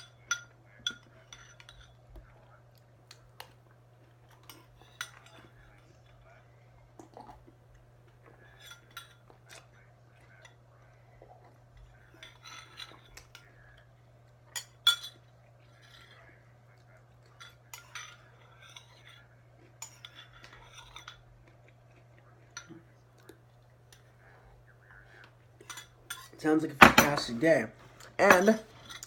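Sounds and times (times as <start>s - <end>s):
spoon clinking on cereal bowl: 0.0s - 2.2s, 14.5s - 16.3s, 17.3s - 21.2s, 28.2s - 29.0s.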